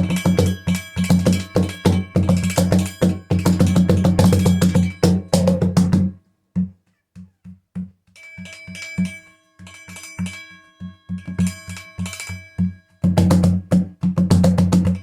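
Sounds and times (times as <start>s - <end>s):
chime drum strikes: 0.0s - 6.2s, 8.1s - 15.0s.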